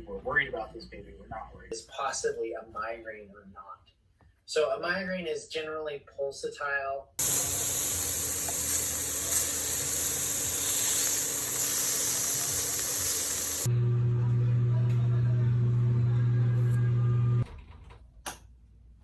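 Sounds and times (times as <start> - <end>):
coffee machine hissing: 7.2 - 13.9.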